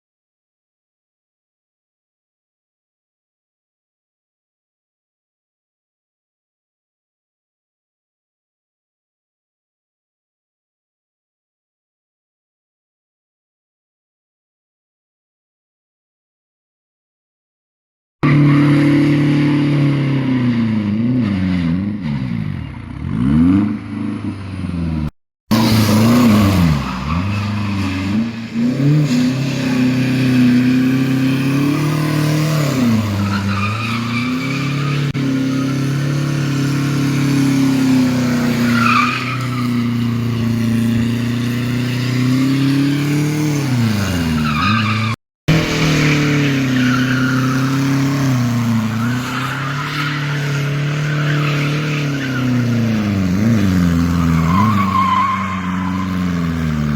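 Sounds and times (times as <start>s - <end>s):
diesel engine revving: 18.2s - 38.7s, 39.3s - 54.8s.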